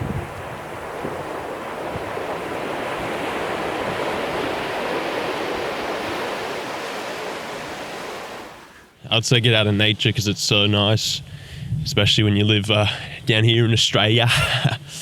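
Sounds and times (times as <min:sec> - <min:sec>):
ocean surf washing ashore: 0:00.0 - 0:10.9.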